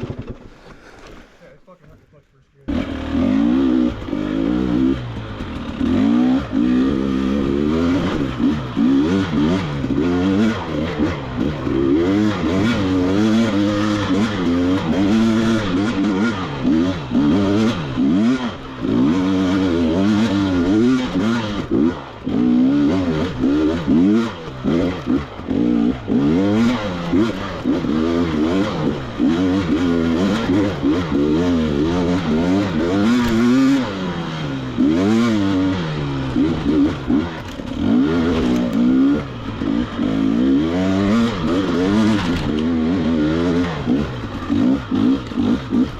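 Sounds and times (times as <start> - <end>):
dirt bike engine revving: 2.6 - 45.9.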